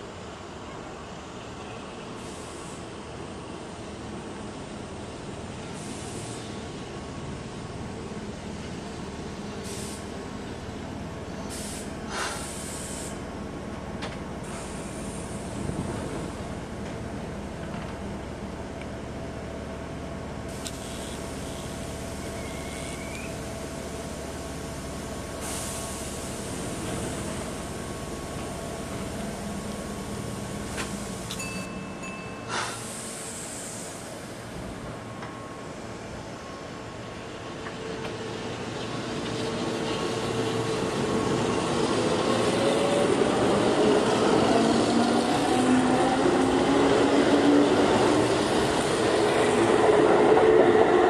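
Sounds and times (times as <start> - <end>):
short bursts of hiss: 2.2 - 2.9, 5.8 - 6.6, 9.6 - 10.1, 11.5 - 13.2, 32.4 - 34.3
train rumbling: 3.1 - 51.0.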